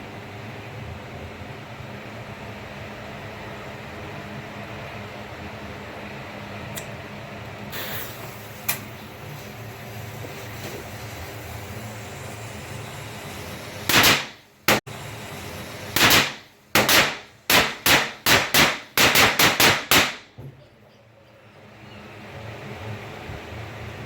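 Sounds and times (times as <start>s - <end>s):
firecrackers banging: 13.9s - 14.8s, 15.8s - 20.4s.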